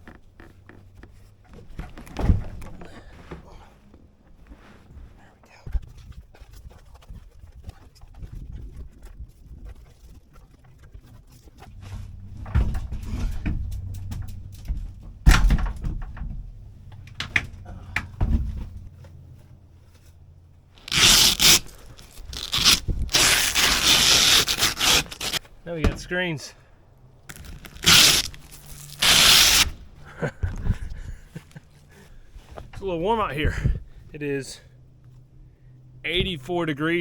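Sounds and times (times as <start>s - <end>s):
camp gear thumps and knocks: 0.1s - 3.7s, 17.2s - 18.8s
loud rustling and scraping: 18.3s - 26.5s, 27.2s - 33.3s.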